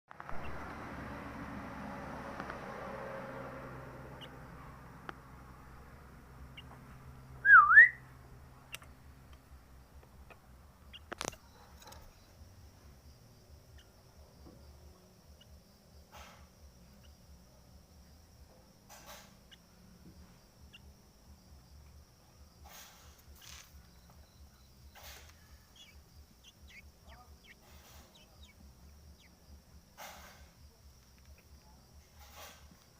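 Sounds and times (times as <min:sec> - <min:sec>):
faint bird chirps: 0:00.2 - 0:00.8, 0:04.0 - 0:32.9
steady low hum: 0:00.2 - 0:32.9
bird whistling: 0:07.4 - 0:08.1.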